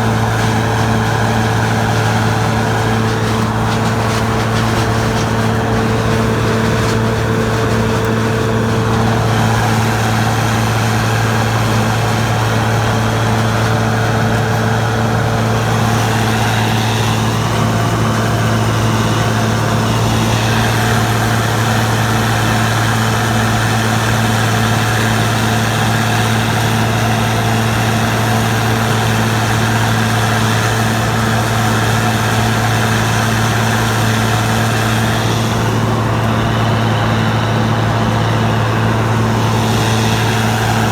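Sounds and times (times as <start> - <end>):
combine engine drone: 0.0 - 40.9.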